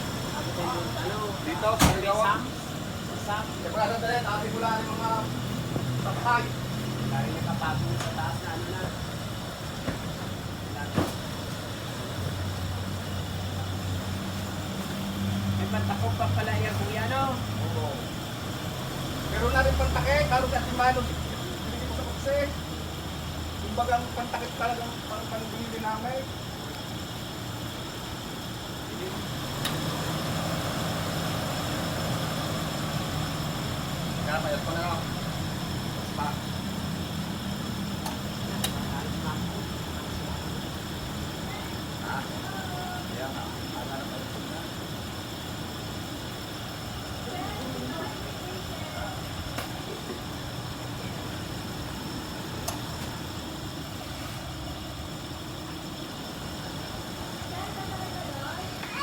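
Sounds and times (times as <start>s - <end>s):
car engine idling: 0.0s - 59.0s
click: 38.0s - 38.8s, 52.6s - 52.8s.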